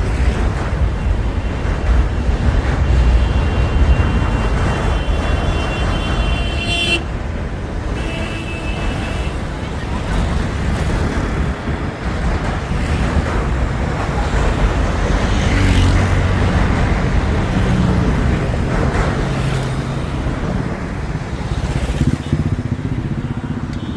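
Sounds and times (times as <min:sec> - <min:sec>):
train rumbling over bridge: 0:00.0 - 0:23.9
wheels clanking on track: 0:07.1 - 0:22.8.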